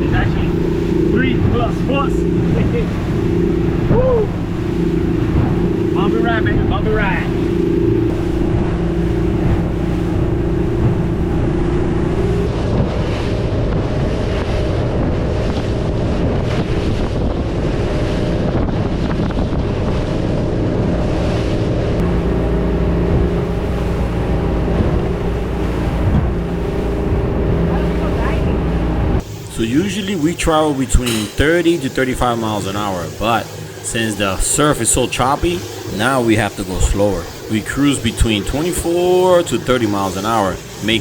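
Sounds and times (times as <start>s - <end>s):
wind buffeting microphone: 0.0s - 32.0s
boat engine drone: 0.0s - 41.0s
hull slapping through waves: 0.0s - 41.0s.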